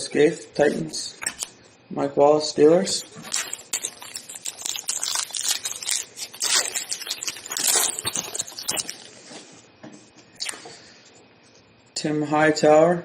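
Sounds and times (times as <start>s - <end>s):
wrapper crinkling and tearing: 2.9s - 9.3s.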